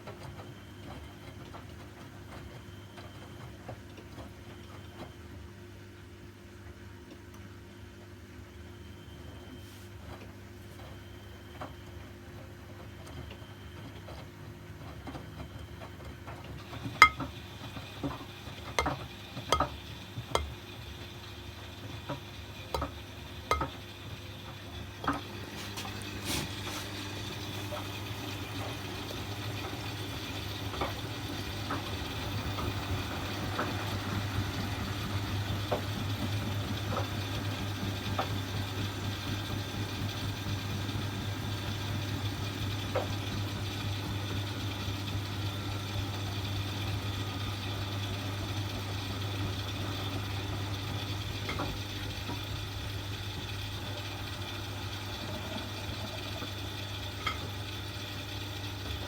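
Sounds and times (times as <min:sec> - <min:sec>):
washing machine motor hum: 0:08.0 - 0:59.0
drum clicks and knocks: 0:17.0 - 0:17.2.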